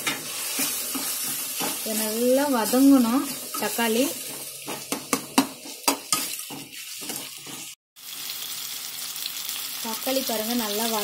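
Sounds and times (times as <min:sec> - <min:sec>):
spoon scraping metal pan: 0:00.0 - 0:07.8
vegetables sizzling in oil: 0:00.0 - 0:11.0.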